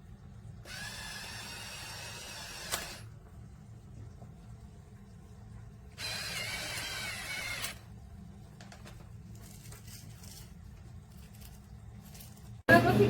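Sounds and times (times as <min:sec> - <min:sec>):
electric pepper grinder whirring: 0:00.7 - 0:03.0, 0:06.0 - 0:07.8.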